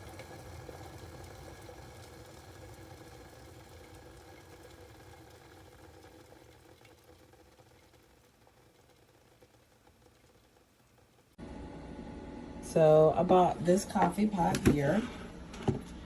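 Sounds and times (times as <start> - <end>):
kettle water boiling: 0.0 - 11.4.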